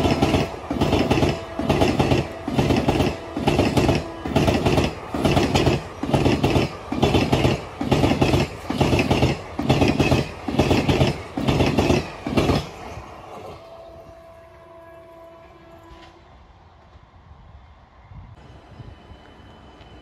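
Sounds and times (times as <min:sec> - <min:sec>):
train wheels clattering over rails: 0:00.0 - 0:13.5.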